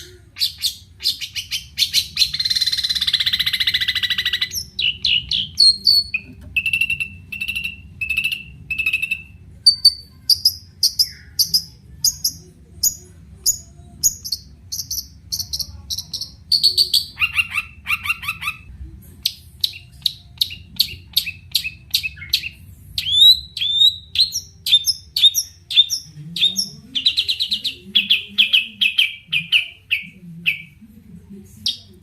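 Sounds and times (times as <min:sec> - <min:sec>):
faint low hum: 0:00.0 - 0:32.0
bird singing chirps and whistles: 0:00.4 - 0:11.7, 0:19.7 - 0:30.6.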